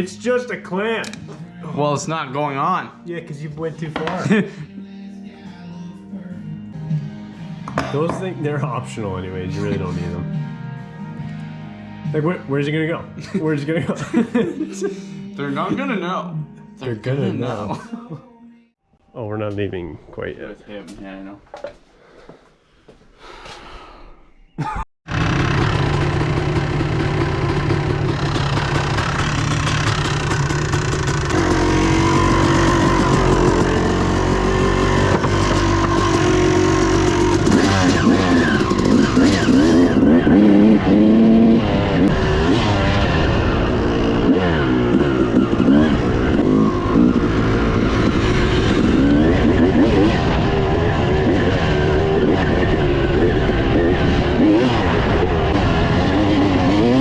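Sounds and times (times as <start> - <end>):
dirt bike engine revving: 25.1 - 57.0.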